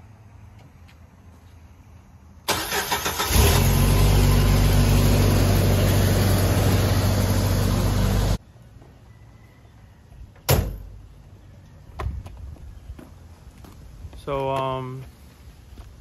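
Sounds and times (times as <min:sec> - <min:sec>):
starter cranking engine: 0:02.5 - 0:04.0
engine running steadily: 0:03.2 - 0:08.4.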